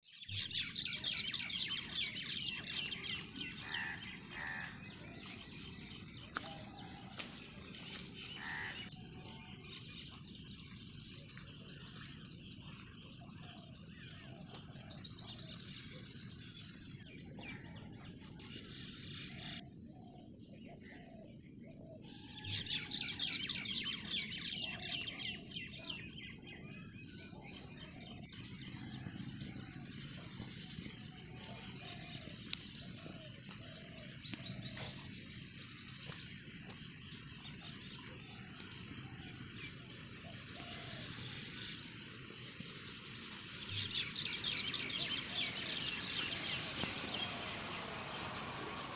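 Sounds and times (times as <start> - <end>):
wild birds chirping and calling: 0.1 - 48.9
high-pitched insect drone: 26.7 - 48.9.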